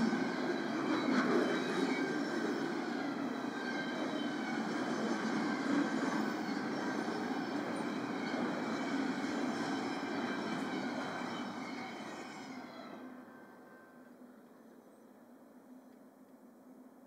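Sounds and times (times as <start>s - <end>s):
steel wheels rumbling on rail: 0.0s - 13.3s.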